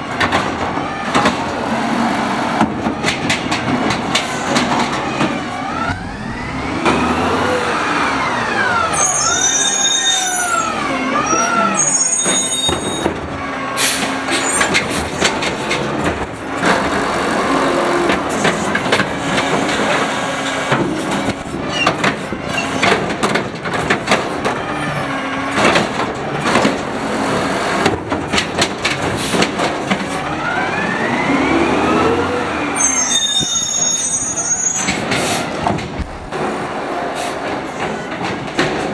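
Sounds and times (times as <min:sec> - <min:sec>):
cart knocking and clattering: 0:00.0 - 0:07.4, 0:10.8 - 0:30.8, 0:34.3 - 0:38.9
hydraulic arm whine: 0:04.2 - 0:13.4
brief high squeals: 0:08.7 - 0:13.1, 0:32.8 - 0:35.0.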